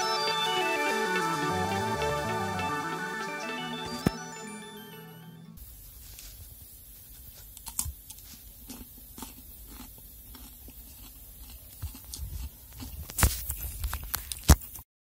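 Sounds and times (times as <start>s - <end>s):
crunching a pickled cucumber: 7.6s - 14.8s.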